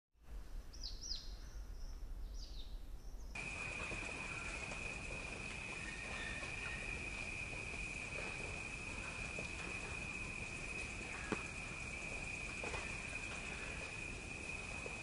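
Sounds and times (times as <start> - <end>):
faint chirps: 0.7 - 15.0
high-pitched insect drone: 3.4 - 15.0
bird whistled calls: 5.6 - 7.1.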